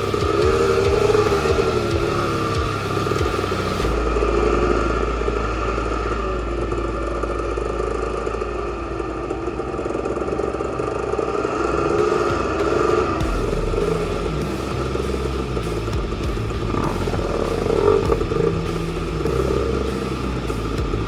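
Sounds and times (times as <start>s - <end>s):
dirt bike engine revving: 0.0s - 6.8s, 11.5s - 21.0s.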